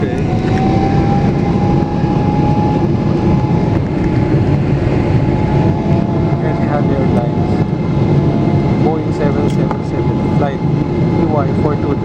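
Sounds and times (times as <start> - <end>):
jet engines running: 0.0 - 12.0
thin engine whine: 0.0 - 12.0.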